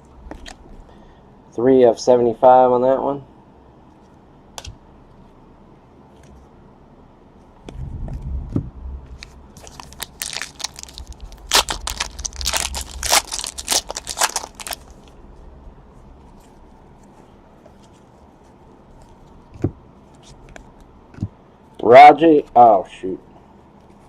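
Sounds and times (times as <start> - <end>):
handling noise: 7.6 - 15.2
wrapper crinkling and tearing: 9.2 - 15.1.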